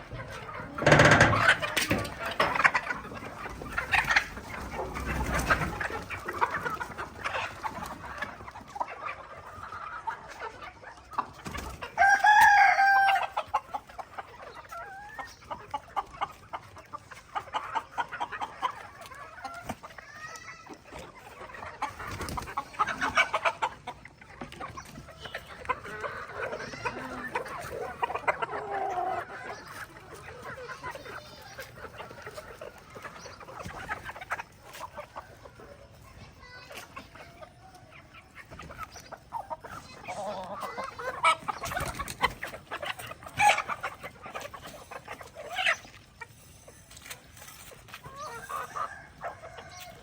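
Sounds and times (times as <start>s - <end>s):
chickens clucking: 0.0s - 50.0s
rooster crowing: 12.0s - 13.2s.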